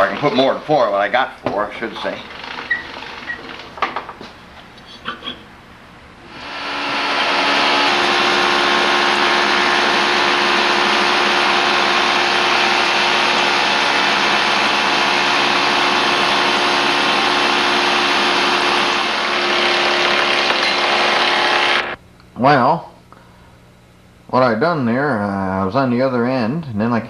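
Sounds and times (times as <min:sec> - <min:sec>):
saw machine whining: 0:06.2 - 0:22.0.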